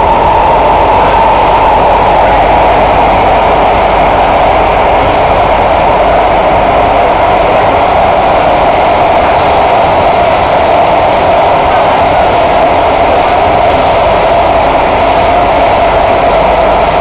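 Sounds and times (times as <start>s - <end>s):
train wheels roaring on rail: 0.0s - 17.0s.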